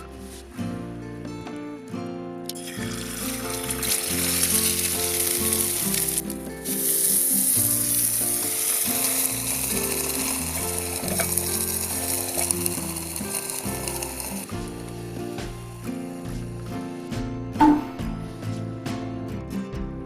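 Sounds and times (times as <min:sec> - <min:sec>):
food sizzling in a pan: 0:02.5 - 0:16.7.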